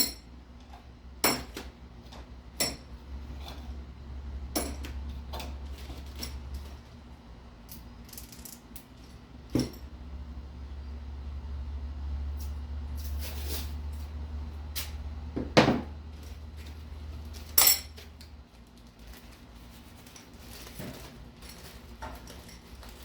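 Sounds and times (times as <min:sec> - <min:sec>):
metal parts clicking and rattling: 0:07.7 - 0:09.8, 0:18.8 - 0:23.0.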